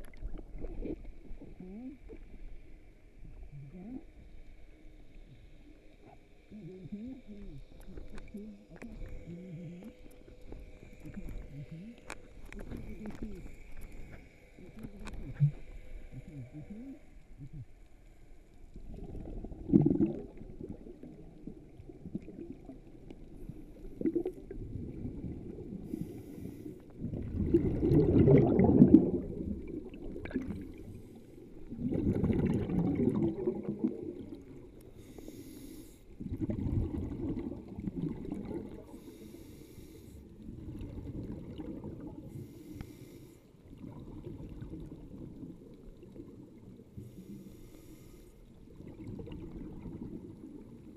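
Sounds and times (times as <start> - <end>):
underwater bubbles gurgling: 0.0 - 50.9
regulator hissing inhalations: 34.9 - 36.1, 39.0 - 40.2, 42.3 - 43.4, 47.0 - 48.4.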